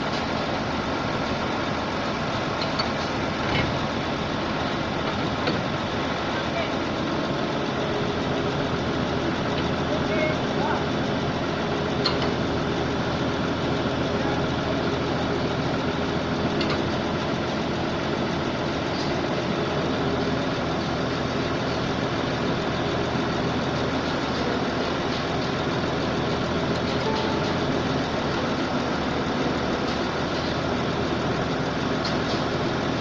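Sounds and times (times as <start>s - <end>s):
diesel air compressor running: 0.0s - 33.0s.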